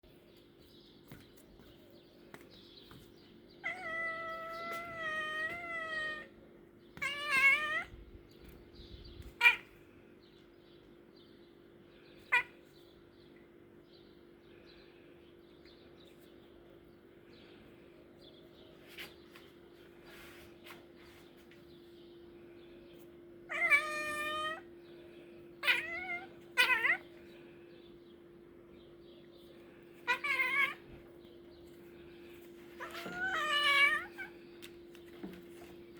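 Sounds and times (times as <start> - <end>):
cat meowing: 3.6 - 6.3, 7.0 - 8.0, 9.3 - 9.7, 12.3 - 12.6, 23.5 - 24.7, 25.6 - 27.1, 30.0 - 30.9, 32.8 - 34.4
steady low hum: 7.9 - 35.9.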